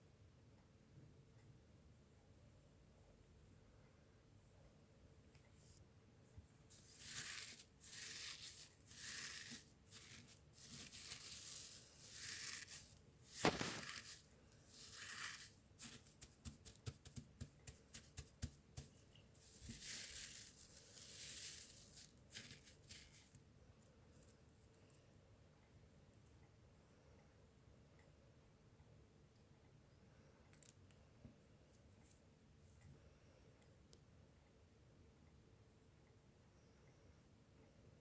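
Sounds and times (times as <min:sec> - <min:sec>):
rustling swishes: 0:06.7 - 0:17.1.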